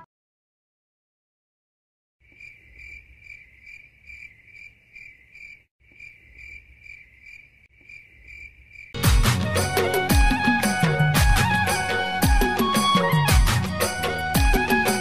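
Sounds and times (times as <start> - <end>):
crickets chirping: 2.2 - 9.0.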